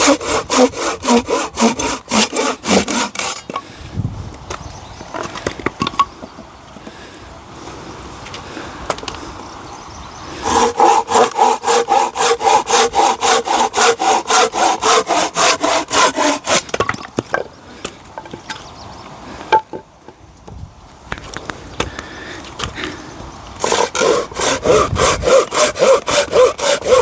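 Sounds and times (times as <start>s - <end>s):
hand saw cutting log: 0.0s - 3.6s, 10.4s - 16.8s, 23.6s - 27.0s.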